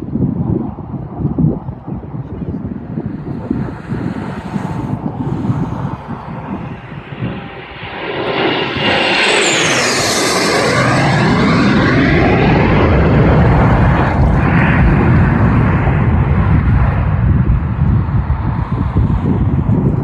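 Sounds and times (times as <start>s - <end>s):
airplane passing low overhead: 0.0s - 20.0s
high engine whine falling in pitch: 2.6s - 15.4s.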